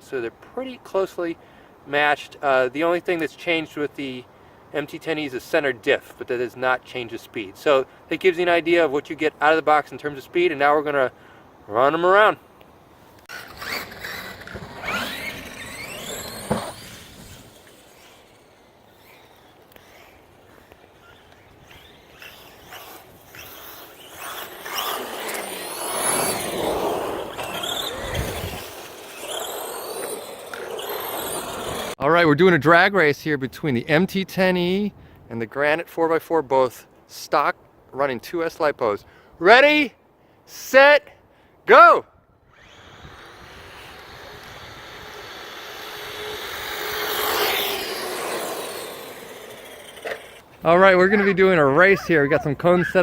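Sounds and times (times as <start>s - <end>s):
toy truck electric motors whining: 13.2s - 32.0s, 42.4s - 53.0s
tyre noise: 13.3s - 32.0s, 46.8s - 53.0s.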